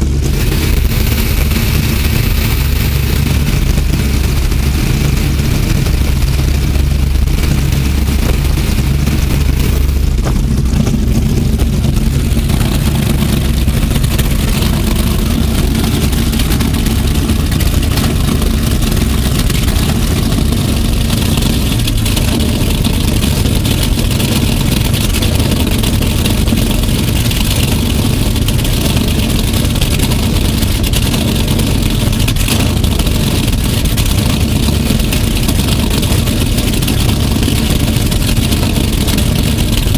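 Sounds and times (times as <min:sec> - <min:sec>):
boat engine idling: 0:00.0 - 0:39.9.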